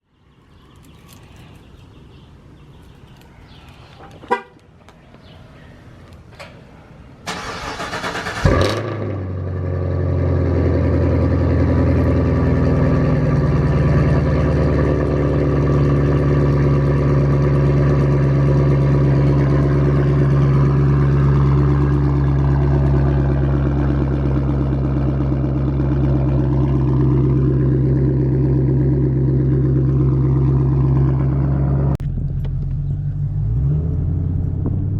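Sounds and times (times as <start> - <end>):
car engine barking then idling: 7.2 - 31.8.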